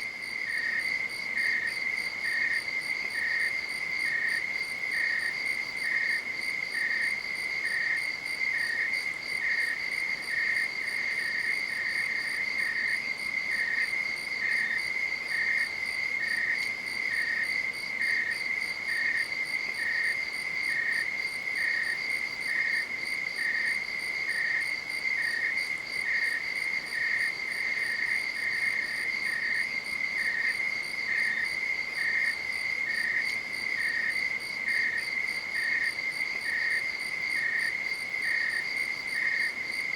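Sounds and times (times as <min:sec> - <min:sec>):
crickets trilling: 0:00.0 - 0:39.9
insect chirping rhythmically: 0:00.0 - 0:39.9.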